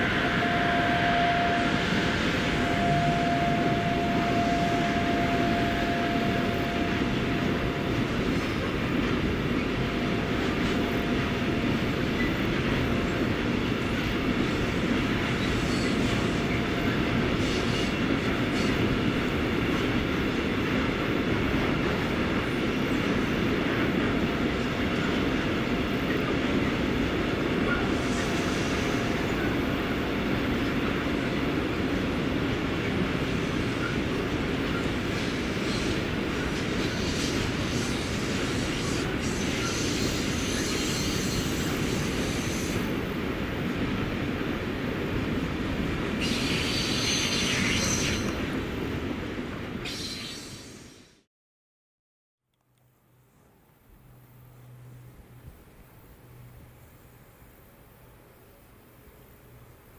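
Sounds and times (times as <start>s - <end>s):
steady tone: 0.0s - 7.8s
train passing on rails: 0.0s - 51.3s, 52.6s - 59.9s.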